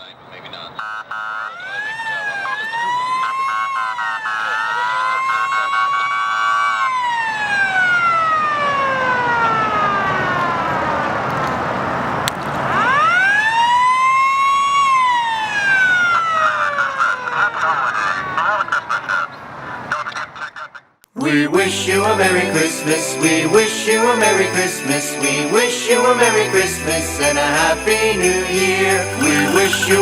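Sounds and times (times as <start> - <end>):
siren wailing: 0.8 - 11.3, 12.7 - 18.6.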